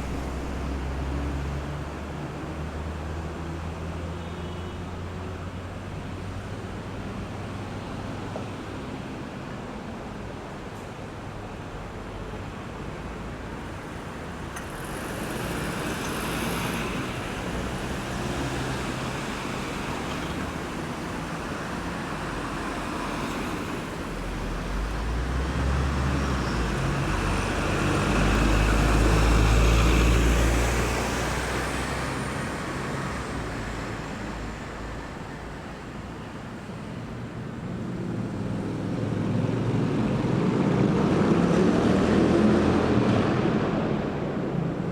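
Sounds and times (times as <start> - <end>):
road traffic passing: 0.0 - 44.9
heavy vehicle engine: 10.2 - 44.9.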